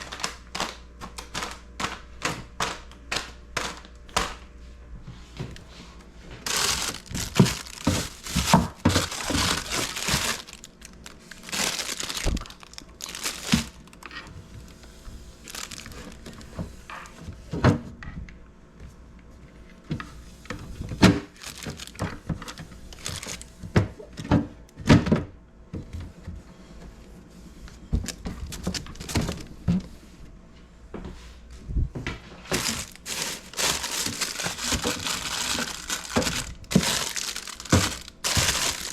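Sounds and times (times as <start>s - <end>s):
rustling and crinkling: 0.0s - 2.0s, 3.6s - 18.2s, 18.9s - 24.4s, 25.8s - 30.3s, 31.0s - 38.9s
containers clicking and knocking: 6.5s - 14.1s, 32.5s - 38.9s.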